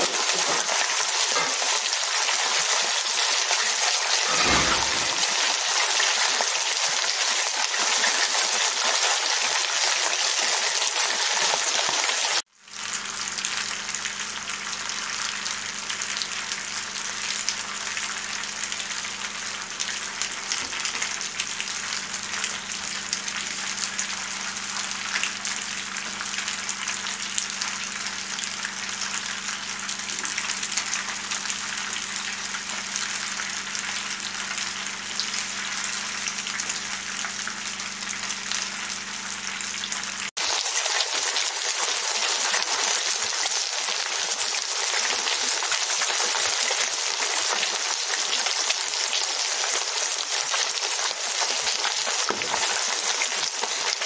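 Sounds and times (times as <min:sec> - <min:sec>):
food sizzling in frying pan: 0:00.0 - 0:42.4
fish frying in hot oil: 0:00.0 - 0:54.0
low hum: 0:12.7 - 0:40.3.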